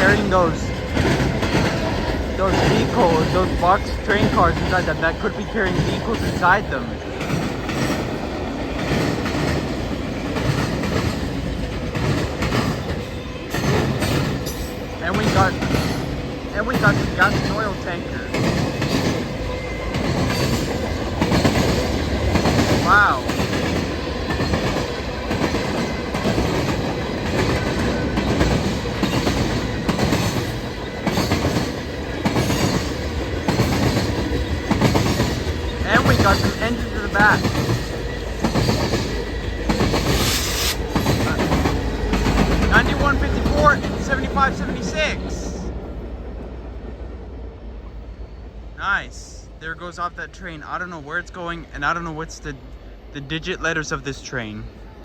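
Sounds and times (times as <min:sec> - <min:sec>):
wheels clacking over rail joints: 0:00.0 - 0:45.4
freight train cars rolling: 0:00.0 - 0:55.0
faint high wheel squeal: 0:35.9 - 0:41.6.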